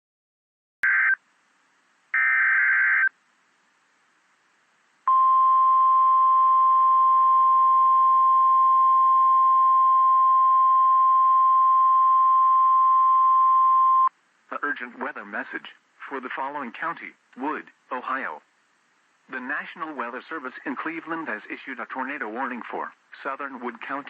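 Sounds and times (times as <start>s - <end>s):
buzzy data screech: 2.2s - 3.1s.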